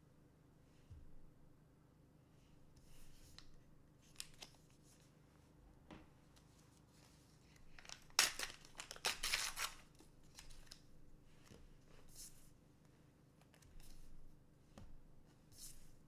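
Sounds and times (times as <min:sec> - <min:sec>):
foil pack tearing: 0:07.8 - 0:09.8
foil rustling: 0:07.8 - 0:09.8.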